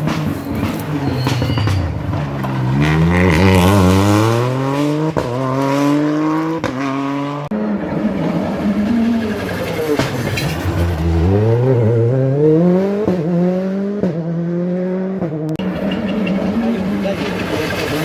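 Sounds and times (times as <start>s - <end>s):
rally car engine accelerating: 0.0s - 18.0s.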